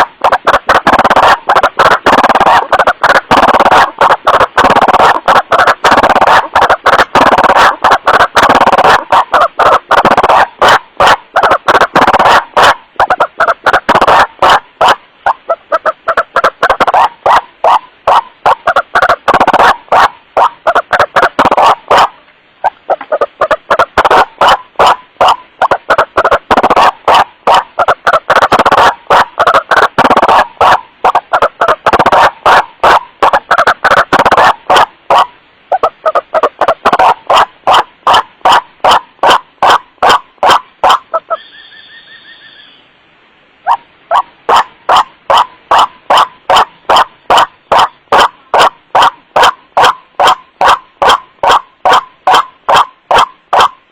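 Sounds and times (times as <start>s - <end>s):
waterhen harsh wak calls: 0.0s - 42.9s, 43.6s - 53.8s.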